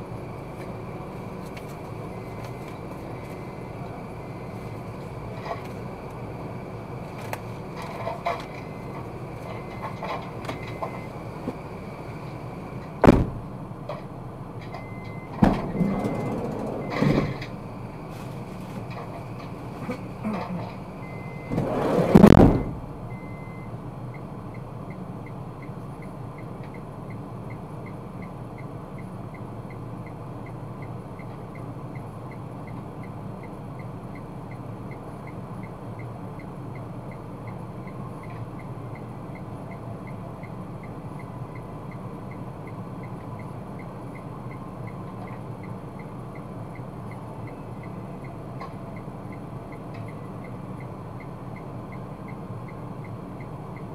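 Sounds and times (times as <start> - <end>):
car engine and road hum: 0.0 - 53.9
loud rushing thump: 13.0 - 13.5, 21.6 - 22.9.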